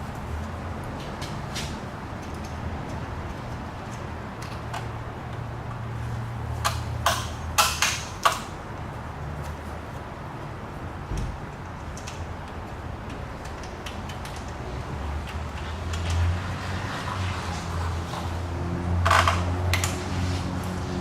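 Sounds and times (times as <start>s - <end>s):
sharp clicks and knocks: 6.6s - 8.6s, 11.0s - 14.6s, 19.0s - 20.0s.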